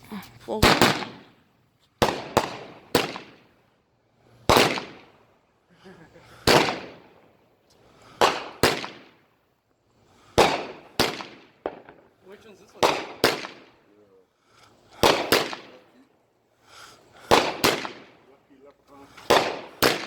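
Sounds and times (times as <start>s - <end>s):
fireworks bangs with echo: 0.6s - 1.4s, 2.0s - 3.6s, 4.4s - 5.2s, 6.4s - 7.4s, 8.1s - 9.4s, 10.3s - 14.0s, 14.8s - 16.0s, 17.1s - 20.0s.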